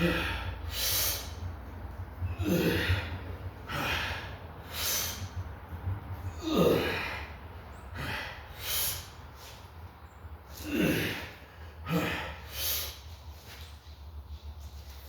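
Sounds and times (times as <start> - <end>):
man grunting: 0.0 - 0.5, 2.3 - 4.3, 6.3 - 7.3, 10.6 - 12.4
man breathing hard: 0.0 - 9.8, 10.4 - 13.6
steady low hum: 0.0 - 15.0.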